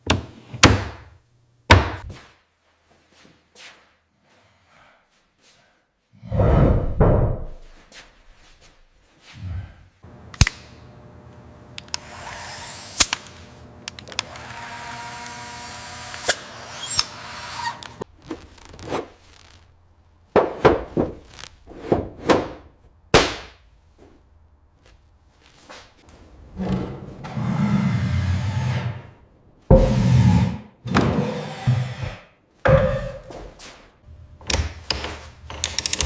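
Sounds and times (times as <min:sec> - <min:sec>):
power tool whirring: 0:11.8 - 0:18.0.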